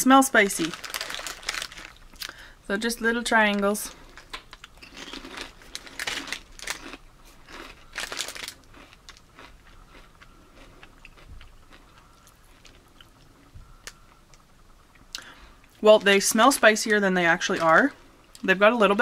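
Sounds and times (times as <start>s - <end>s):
tortilla chip crunching: 0.6s - 2.4s, 4.0s - 14.0s
person chewing: 4.1s - 15.8s.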